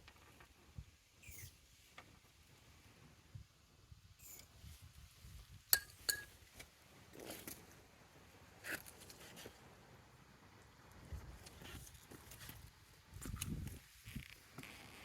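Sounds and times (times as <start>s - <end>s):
sharp metallic clinks: 1.2s - 1.5s, 4.2s - 4.5s, 5.8s - 6.3s
handling scrapes and rustles: 6.5s - 7.8s, 8.6s - 9.6s.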